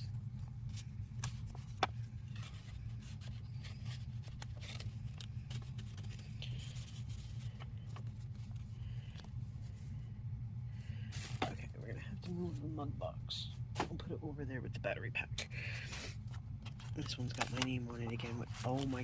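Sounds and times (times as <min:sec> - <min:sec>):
paper packaging rustling: 0:00.0 - 0:09.8, 0:11.1 - 0:12.6, 0:15.9 - 0:19.0
steady low hum: 0:00.0 - 0:19.0.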